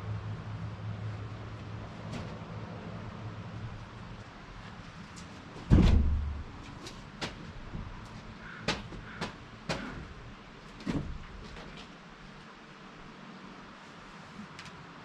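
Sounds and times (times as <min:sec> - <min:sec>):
heavy deep thud: 0:05.6 - 0:06.6
sharp knocks: 0:05.7 - 0:06.5, 0:08.6 - 0:10.2.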